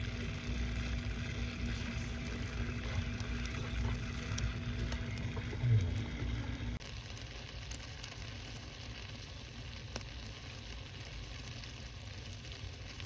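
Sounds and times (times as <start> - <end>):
faint fire crackles: 0.0 - 13.0
fire low rumble: 0.0 - 13.0.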